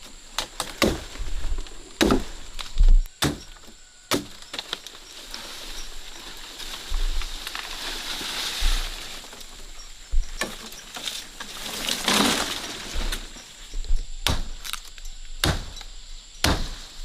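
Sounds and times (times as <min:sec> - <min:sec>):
scraping rustle: 0:04.4 - 0:13.8
handling and rustling: 0:04.4 - 0:14.0
sharp wooden knocks: 0:15.4 - 0:15.8.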